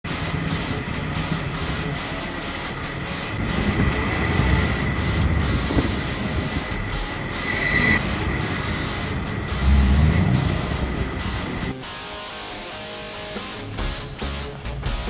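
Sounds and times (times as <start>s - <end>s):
high whine: 0.0s - 15.0s
engine revving: 0.1s - 11.9s.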